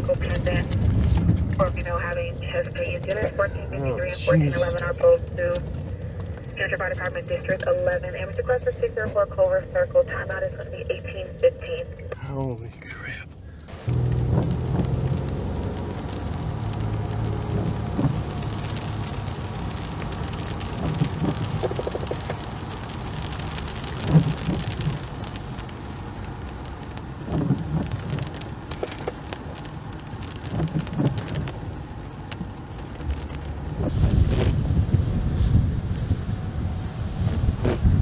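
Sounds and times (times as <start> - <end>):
rain on car windshield and roof: 0.0 - 38.0.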